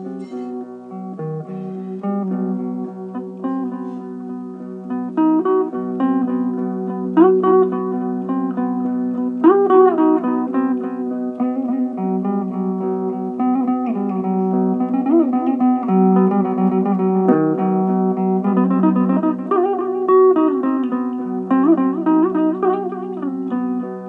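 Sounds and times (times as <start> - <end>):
electric mandolin melody: 0.0 - 24.0.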